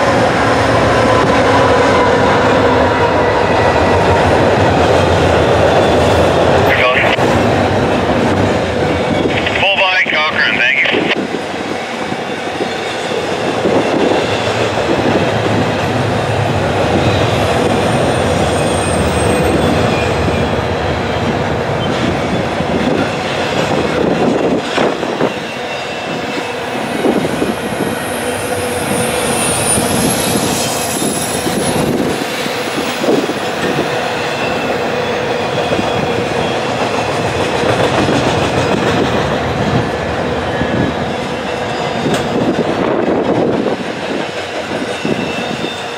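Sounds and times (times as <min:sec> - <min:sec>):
freight train wheels roaring: 0:00.0 - 0:45.9
high wheel squeals: 0:27.1 - 0:32.0, 0:44.8 - 0:45.9.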